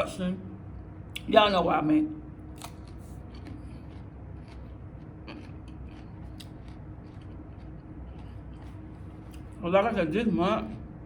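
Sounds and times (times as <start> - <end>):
steady low hum: 0.0 - 11.0
crunchy chewing: 2.5 - 11.0.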